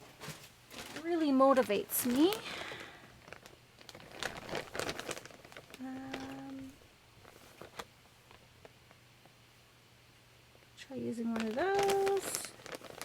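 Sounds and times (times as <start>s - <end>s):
fabric and paper rustling: 0.0s - 8.8s, 11.2s - 13.0s
person humming: 5.8s - 6.8s.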